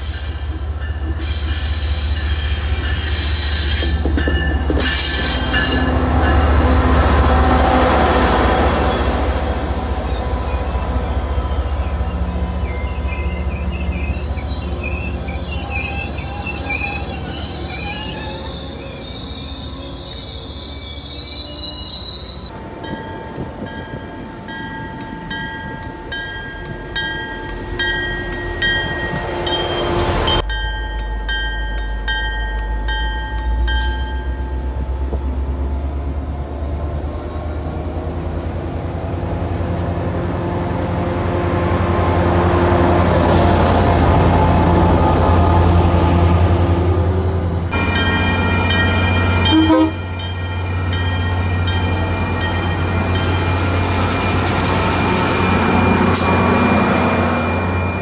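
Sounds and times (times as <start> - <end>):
diesel locomotive engine rumbling: 0.0 - 58.0
train coaches rumbling past: 0.0 - 58.0
high wheel squeal: 1.1 - 4.1, 8.7 - 22.5
locomotive bell ringing: 3.9 - 8.2, 9.9 - 35.0, 47.2 - 58.0.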